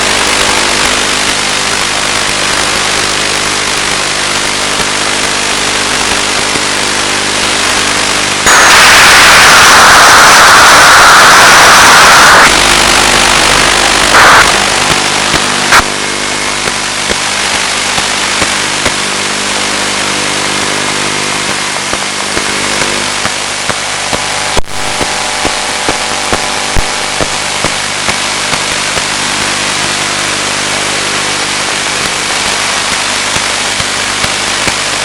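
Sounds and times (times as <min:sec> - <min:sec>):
bursts of static: 0:00.0 - 0:35.0
steady multi-tone hum: 0:00.0 - 0:35.0
hiss: 0:07.4 - 0:15.9, 0:23.2 - 0:35.0.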